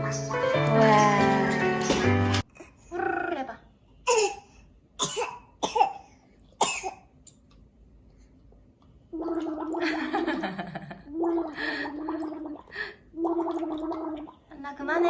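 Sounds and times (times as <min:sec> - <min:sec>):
child coughing: 0:04.1 - 0:07.1.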